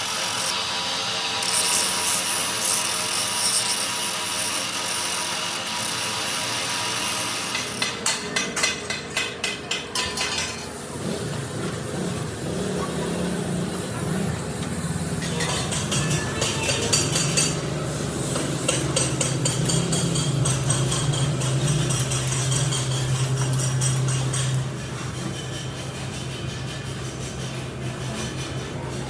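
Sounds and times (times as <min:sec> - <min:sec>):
power tool hissing: 0:00.0 - 0:08.0
power tool rumbling: 0:00.0 - 0:09.2.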